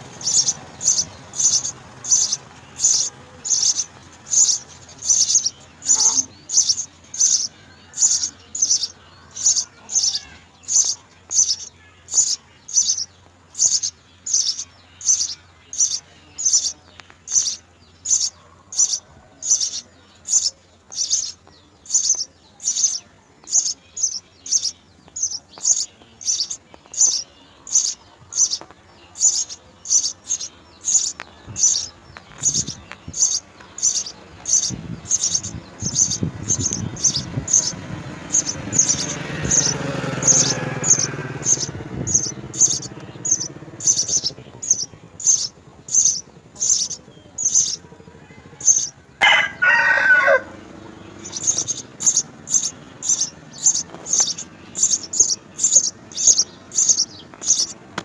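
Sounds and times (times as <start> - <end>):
sparrow chirping: 0.0 - 58.0
low rumble: 31.0 - 49.2.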